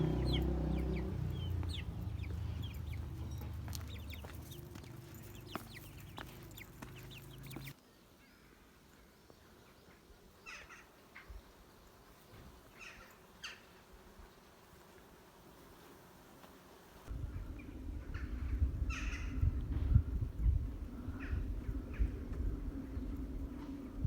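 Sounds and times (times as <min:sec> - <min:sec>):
low steady hum: 0:00.0 - 0:07.7, 0:17.1 - 0:24.0
faint bird chirps: 0:00.0 - 0:11.5.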